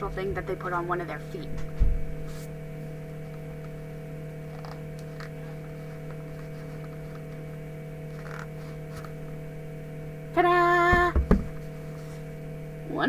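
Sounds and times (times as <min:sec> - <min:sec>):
electrical mains hum: 0:00.0 - 0:13.0
faint handling noises: 0:04.5 - 0:09.4.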